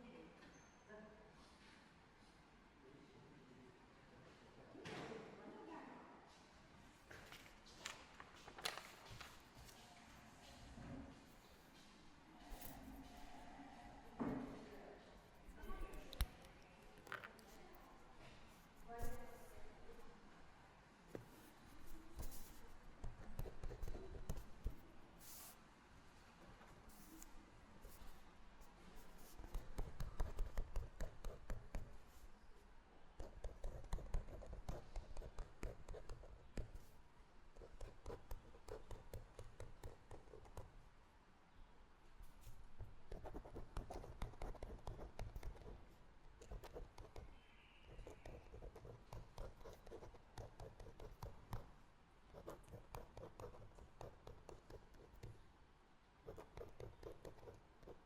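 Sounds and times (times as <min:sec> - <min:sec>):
pen scratching on paper: 0:21.1 - 0:25.6, 0:29.0 - 0:32.3, 0:33.2 - 0:36.9, 0:37.5 - 0:40.7, 0:42.4 - 0:51.7, 0:52.3 - 0:55.4, 0:56.3 - 0:58.0.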